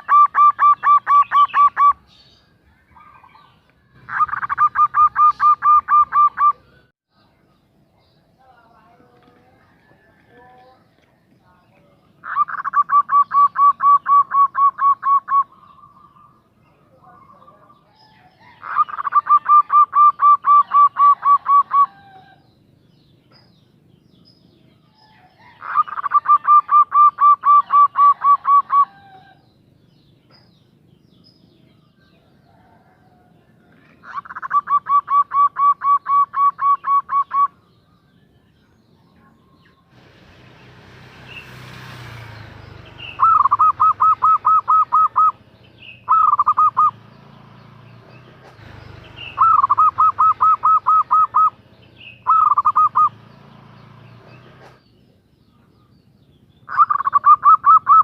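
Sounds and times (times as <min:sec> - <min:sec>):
dove cooing: 0:00.0 - 0:02.1, 0:03.0 - 0:06.8, 0:12.2 - 0:16.4, 0:17.2 - 0:22.5, 0:25.1 - 0:29.4, 0:32.3 - 0:37.6, 0:43.0 - 0:47.0, 0:48.5 - 0:53.2, 0:56.7 - 0:58.0.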